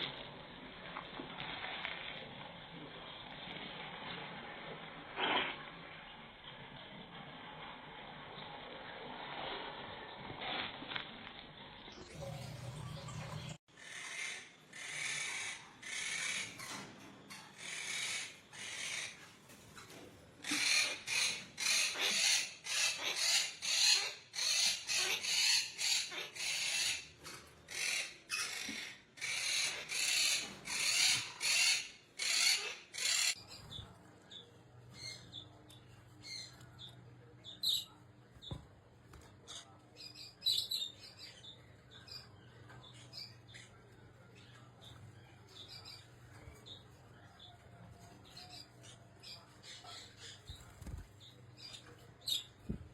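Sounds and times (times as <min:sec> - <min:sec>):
parrot squawking: 0:12.9 - 0:16.8, 0:17.6 - 0:19.2, 0:20.4 - 0:33.4.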